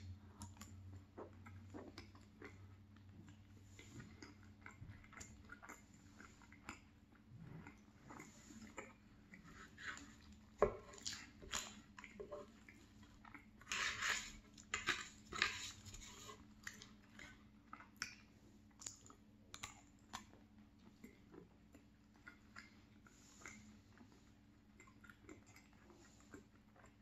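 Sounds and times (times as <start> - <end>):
person chewing with mouth clicks: 0.0 - 27.0
fork scraping foil tin: 13.7 - 16.4.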